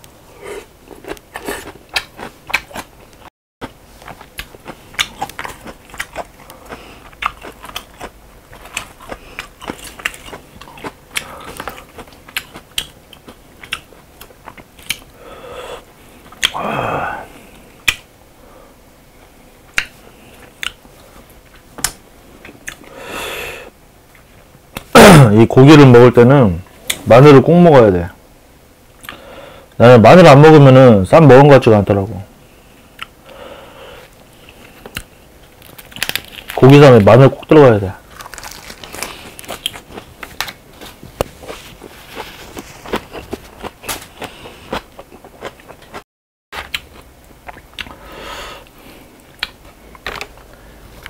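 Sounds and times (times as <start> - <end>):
person chewing and smacking noodles: 0.4 - 15.2, 38.1 - 46.0, 46.6 - 50.6.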